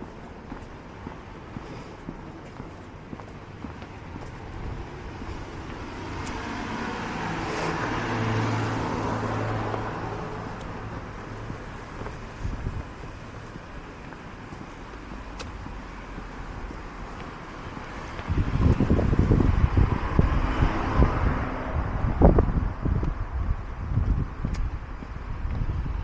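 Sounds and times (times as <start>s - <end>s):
vehicle driving past: 5.0s - 12.0s.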